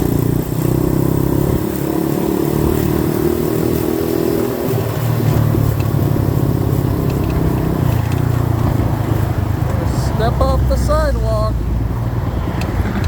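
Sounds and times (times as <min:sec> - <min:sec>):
dirt bike engine running: 0:00.0 - 0:13.0
wind and road noise: 0:00.0 - 0:13.0.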